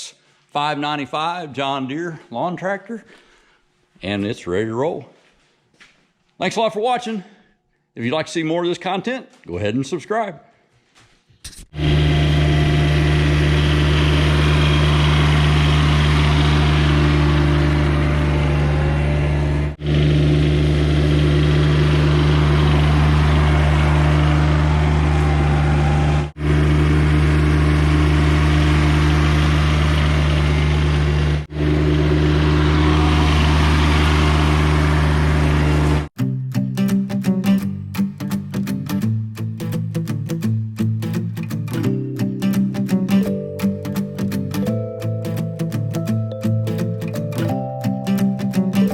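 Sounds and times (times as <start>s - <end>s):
lawn tractor engine running: 11.8s - 36.2s.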